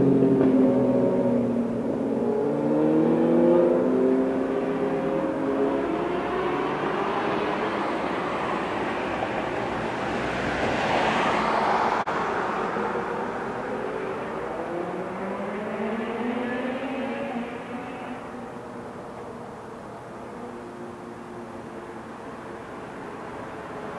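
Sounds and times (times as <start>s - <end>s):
motor vehicle driving past: 0.0s - 8.8s.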